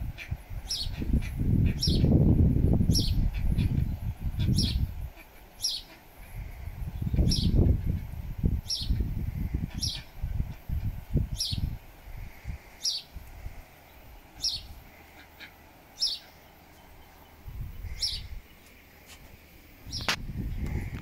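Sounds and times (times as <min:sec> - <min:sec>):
wind rumble on microphone: 0:00.0 - 0:05.2, 0:06.2 - 0:15.0, 0:17.0 - 0:18.6, 0:19.3 - 0:21.0
small bird chirping: 0:00.2 - 0:02.2, 0:02.9 - 0:06.0, 0:07.0 - 0:08.0, 0:08.6 - 0:10.2, 0:11.3 - 0:11.8, 0:12.8 - 0:13.2, 0:13.8 - 0:18.9, 0:19.8 - 0:21.0.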